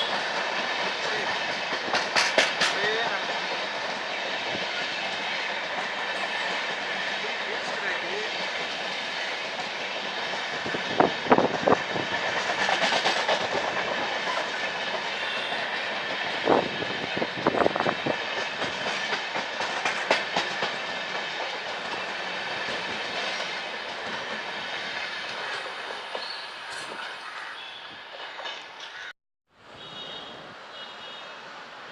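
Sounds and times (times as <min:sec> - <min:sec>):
wheels clicking on rail joints: 0:00.0 - 0:29.0
train rumble and hiss: 0:00.0 - 0:31.9.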